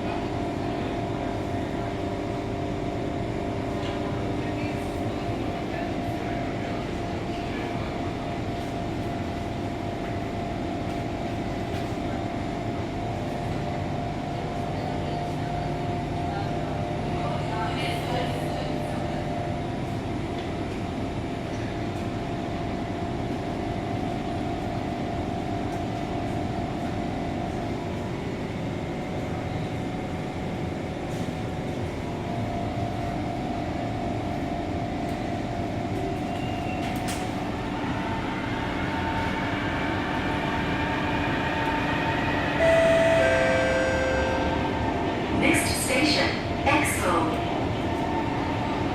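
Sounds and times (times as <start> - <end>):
train rumble and hiss: 0.0 - 48.9
faint held tone: 42.4 - 45.0.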